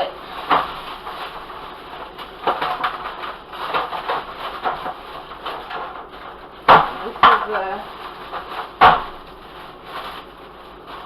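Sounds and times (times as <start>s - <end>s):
plastic bag rustling: 0.0s - 11.0s.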